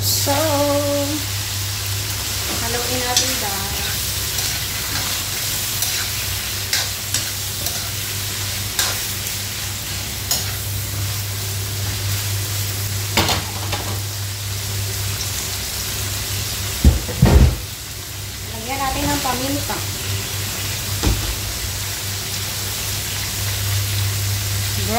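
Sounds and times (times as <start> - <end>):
meat and onion sizzling in oil: 0.0 - 24.9
spatula scraping and clacking pan: 3.1 - 8.0, 8.7 - 9.1, 10.2 - 10.6.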